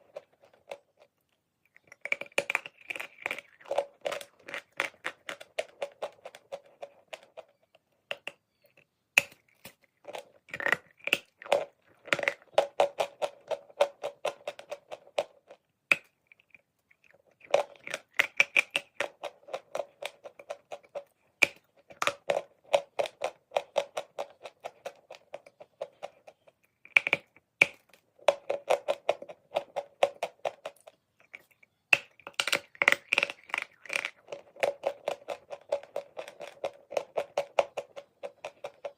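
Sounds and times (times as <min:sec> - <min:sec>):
chalk crunching while chewed: 0:30.6 - 0:38.7.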